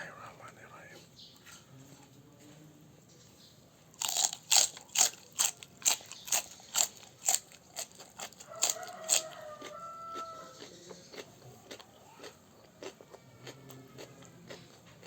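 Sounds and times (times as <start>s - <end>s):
crunchy food chewing: 3.9s - 15.0s.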